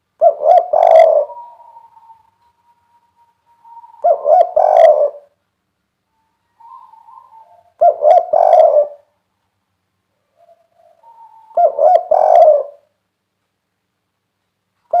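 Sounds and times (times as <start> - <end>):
dove cooing: 0.2 - 5.4, 6.4 - 9.1, 10.2 - 12.9.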